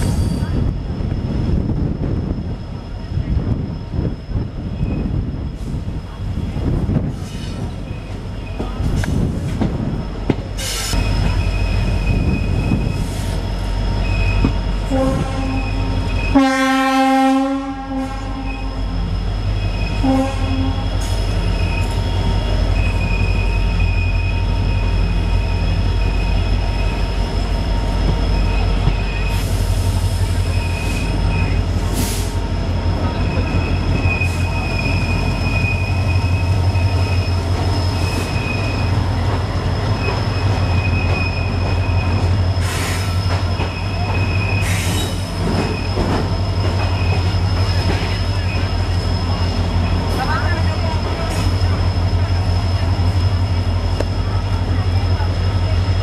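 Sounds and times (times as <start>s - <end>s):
train coach rumbling: 0.0s - 56.0s
wheels and brakes squealing: 2.2s - 16.4s, 18.1s - 56.0s
locomotive horn: 14.8s - 18.8s, 20.0s - 21.0s.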